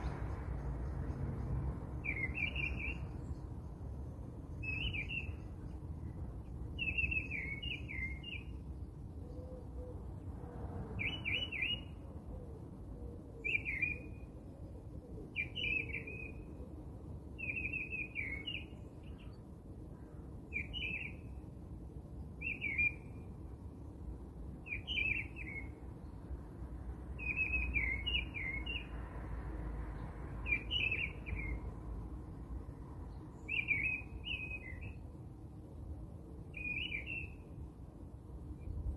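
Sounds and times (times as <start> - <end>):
bird chirping: 0.0 - 3.8, 4.5 - 9.4, 11.0 - 12.0, 13.4 - 14.2, 15.3 - 16.5, 17.4 - 19.4, 20.5 - 21.4, 22.4 - 23.2, 24.6 - 26.2, 27.2 - 29.0, 30.0 - 31.7, 33.1 - 35.1, 36.5 - 37.5.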